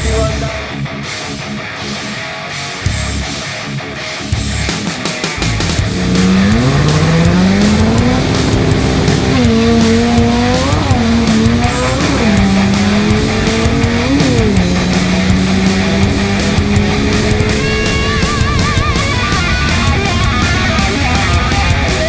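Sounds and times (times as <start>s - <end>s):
rock music: 0.0s - 22.0s
car engine revving: 5.4s - 22.0s.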